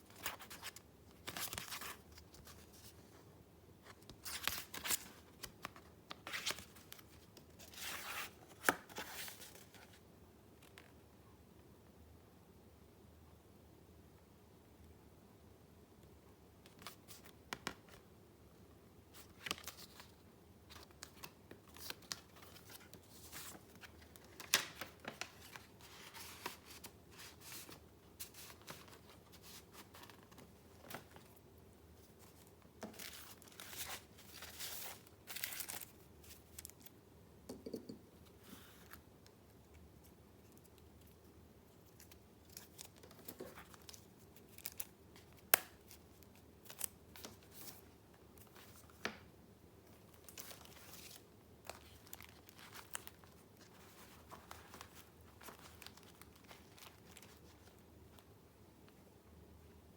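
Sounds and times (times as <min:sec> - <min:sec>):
paper rustling and crinkling: 0:19.2 - 0:31.4, 0:32.0 - 0:36.9, 0:49.9 - 0:58.3.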